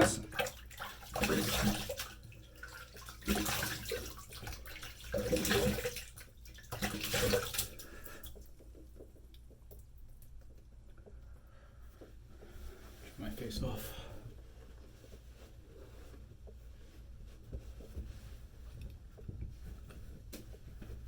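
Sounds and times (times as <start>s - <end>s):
tap water splashing in sink: 0.0s - 11.2s.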